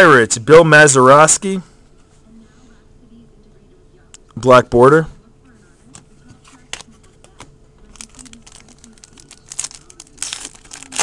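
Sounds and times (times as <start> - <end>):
card crinkling and clicks: 6.5 - 11.0.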